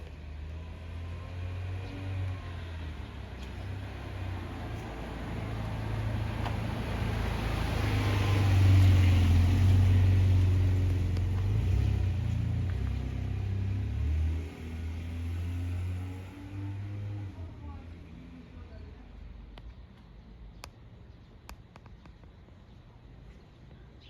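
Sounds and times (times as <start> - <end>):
car driving past: 0.5 - 18.3.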